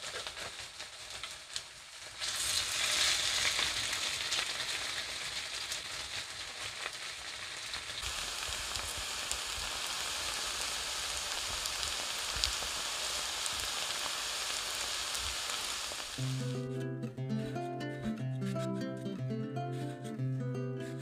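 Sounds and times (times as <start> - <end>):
fritters sizzling in oil: 0.0 - 16.6.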